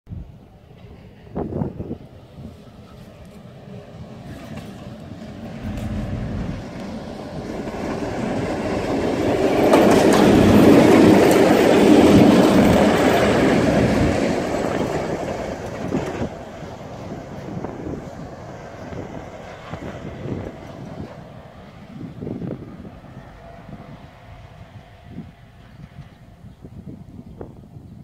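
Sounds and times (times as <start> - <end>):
diesel locomotive engine: 0.1 - 28.0
wheels clacking over rail joints: 3.3 - 21.6.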